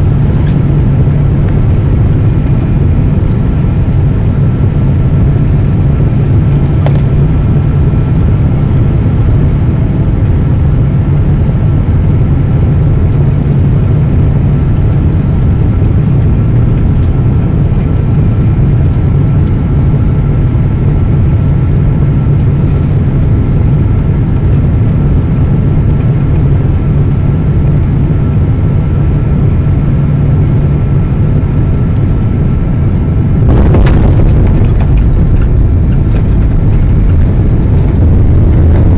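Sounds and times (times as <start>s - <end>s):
airplane cabin rumble: 0.0s - 38.9s
faint high whine: 0.0s - 38.9s
low hum: 0.0s - 38.9s
loud air rush: 22.5s - 23.2s.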